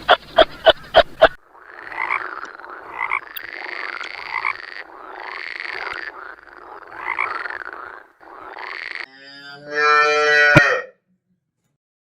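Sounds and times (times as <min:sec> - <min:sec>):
frog croaking: 0:00.0 - 0:09.2.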